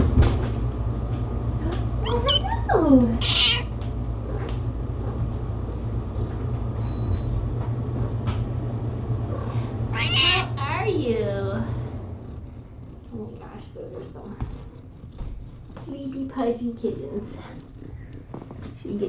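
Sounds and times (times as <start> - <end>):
steady low hum: 0.0 - 19.0
cat meowing: 2.0 - 4.6, 9.3 - 10.8.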